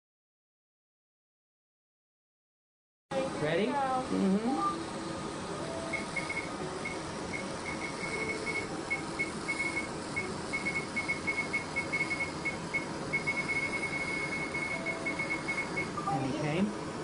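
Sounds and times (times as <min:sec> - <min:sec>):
steady machine hiss: 0:04.8 - 0:17.0
laser short high beeps: 0:05.9 - 0:16.3.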